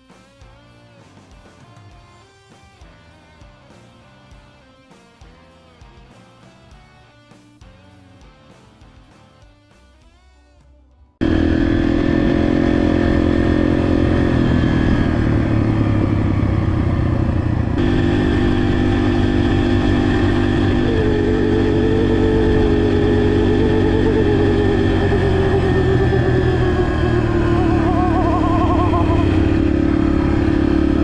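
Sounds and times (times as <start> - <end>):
dirt bike engine running: 11.2 - 31.0.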